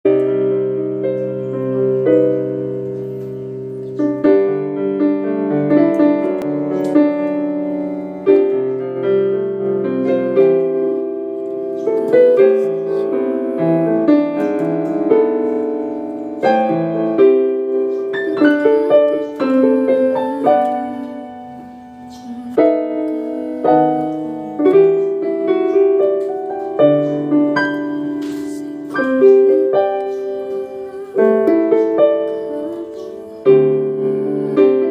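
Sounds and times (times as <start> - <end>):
digital piano playing chords: 0.0 - 34.9.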